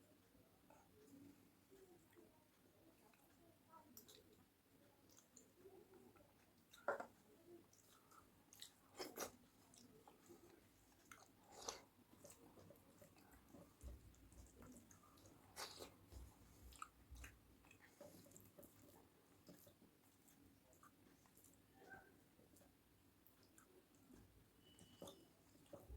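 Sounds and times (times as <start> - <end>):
chewing and biting food: 1.7 - 21.7.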